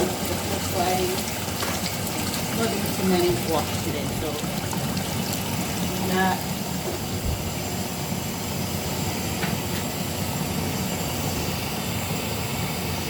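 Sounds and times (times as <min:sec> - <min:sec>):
water pouring into a tub: 0:00.0 - 0:08.0.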